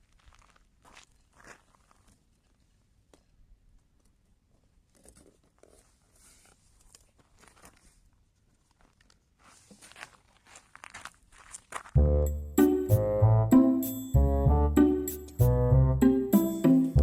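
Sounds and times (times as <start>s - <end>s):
faint rustling handling noises: 0.2s - 11.9s.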